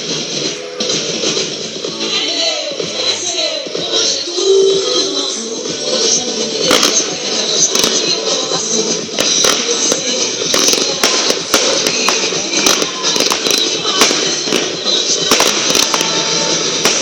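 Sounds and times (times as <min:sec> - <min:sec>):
fireworks crackling: 0:00.0 - 0:17.0
music playing: 0:00.0 - 0:17.0
fireworks popping and banging: 0:05.8 - 0:17.0.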